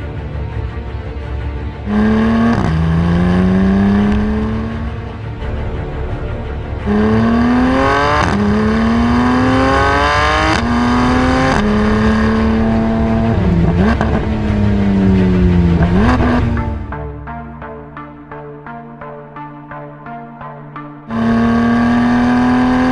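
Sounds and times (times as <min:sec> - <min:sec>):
car engine accelerating hard: 0:01.8 - 0:05.3, 0:06.8 - 0:17.1, 0:21.1 - 0:22.9.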